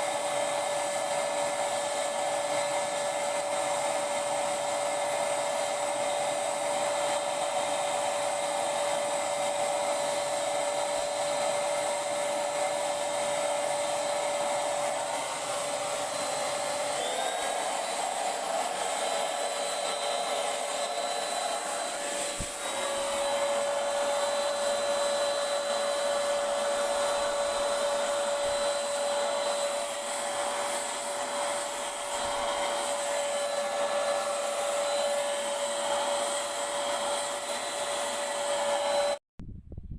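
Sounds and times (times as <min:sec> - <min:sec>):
paint sprayer motor whine: 0:00.0 - 0:39.2.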